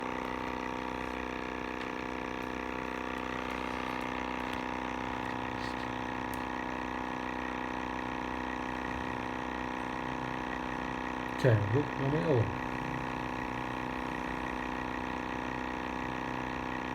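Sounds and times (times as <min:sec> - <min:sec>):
pump motor hum: 0:00.0 - 0:16.9.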